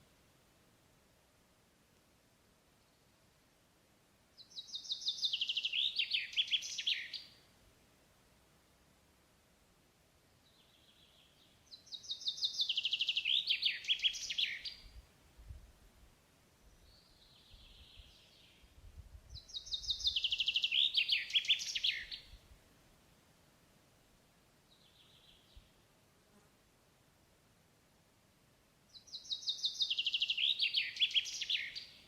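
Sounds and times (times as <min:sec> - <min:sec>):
songbird singing: 0:04.3 - 0:07.5, 0:10.4 - 0:15.0, 0:16.5 - 0:22.5, 0:24.6 - 0:25.8, 0:28.9 - 0:32.0
soft high bird calls: 0:19.4 - 0:22.4, 0:29.0 - 0:32.0.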